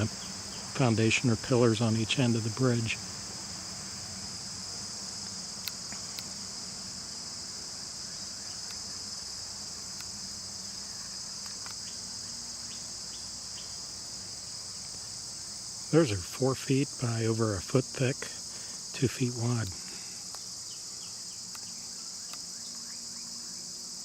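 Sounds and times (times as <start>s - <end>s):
insects buzzing: 0.0s - 24.0s
faint clicks: 11.0s - 12.0s, 19.6s - 20.5s.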